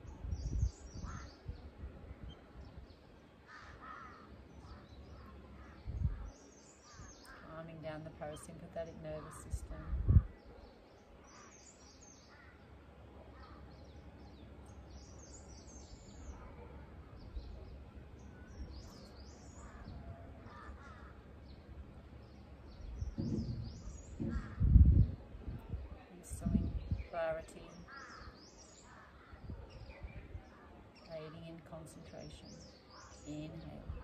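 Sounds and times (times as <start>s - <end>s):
birds calling: 0.0s - 25.2s, 26.3s - 34.0s
low thumps: 22.9s - 25.2s.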